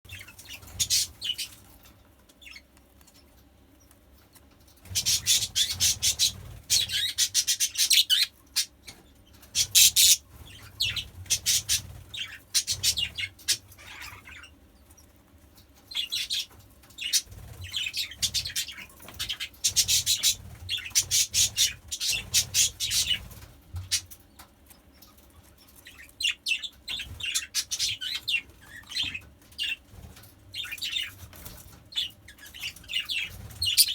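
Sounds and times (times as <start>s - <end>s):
budgerigars chirping: 0.1s - 1.6s, 4.8s - 14.5s, 15.9s - 23.2s, 25.8s - 29.8s, 31.9s - 33.9s.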